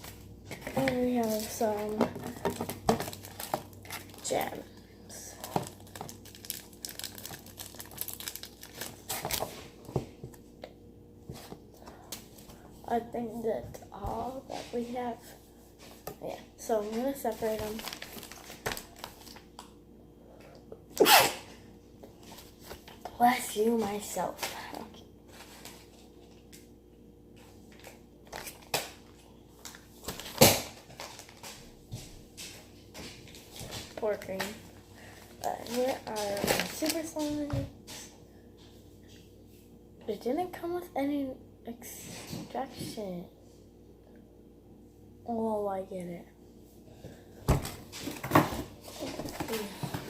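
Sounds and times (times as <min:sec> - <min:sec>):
plastic packaging crinkling: 0:00.5 - 0:09.9, 0:17.2 - 0:19.7, 0:27.7 - 0:31.6, 0:35.3 - 0:37.4.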